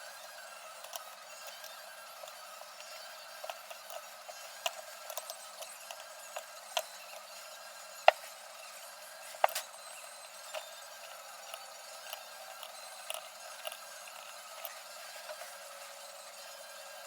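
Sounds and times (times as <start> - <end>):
tools and parts clicking: 4.6 - 6.9, 9.4 - 9.7, 11.5 - 13.9.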